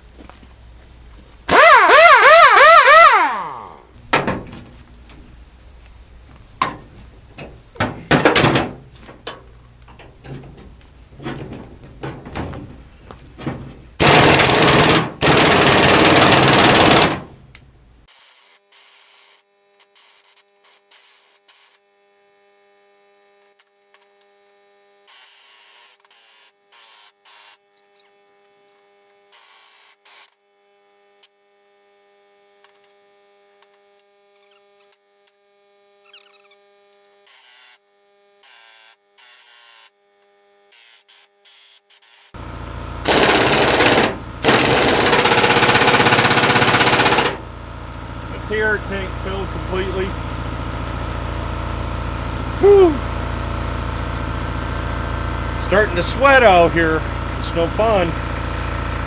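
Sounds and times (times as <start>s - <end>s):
pneumatic impact wrench hammering: 1.5s - 4.7s, 6.6s - 9.5s, 13.5s - 17.4s, 18.0s - 21.9s, 25.0s - 30.5s, 32.6s - 33.0s, 33.6s - 35.4s, 36.0s - 37.8s, 38.4s - 42.4s, 43.0s - 47.5s.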